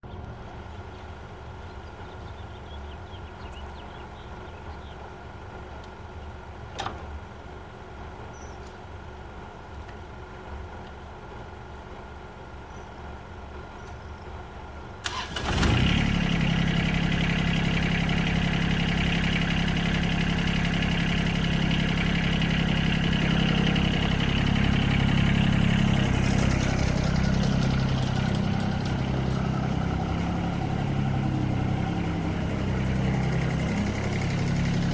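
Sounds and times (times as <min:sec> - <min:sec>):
diesel engine starting and running: 0:00.0 - 0:34.9.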